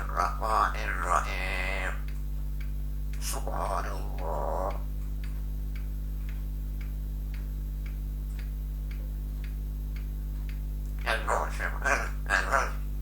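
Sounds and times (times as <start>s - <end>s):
low electrical hum: 0.0s - 13.0s
clock ticking: 5.2s - 11.1s.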